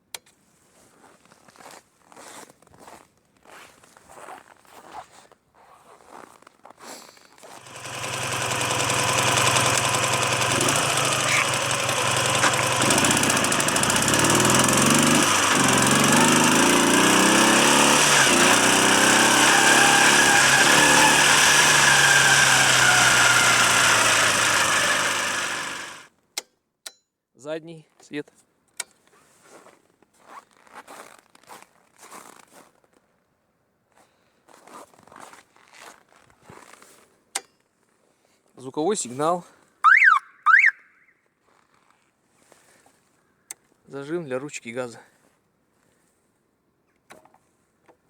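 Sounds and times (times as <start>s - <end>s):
motorcycle engine starting and running: 7.5s - 26.1s.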